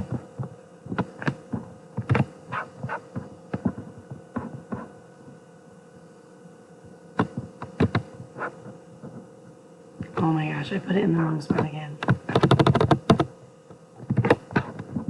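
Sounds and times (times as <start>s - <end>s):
electrical hum: 0.0s - 15.0s
keyboard keys clicking: 12.3s - 13.3s.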